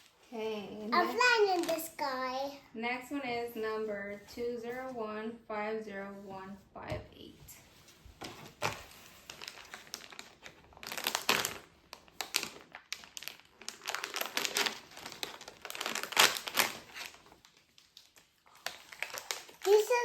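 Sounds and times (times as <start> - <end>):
packaging crinkling and rustling: 1.0 - 2.3, 7.9 - 20.0.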